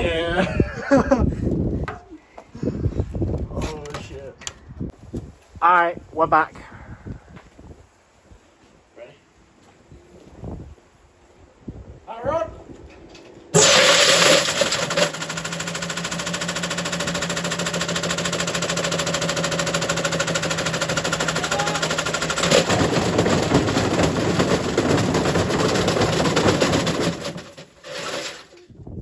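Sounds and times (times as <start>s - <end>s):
washing machine motor hum: 13.6s - 28.3s.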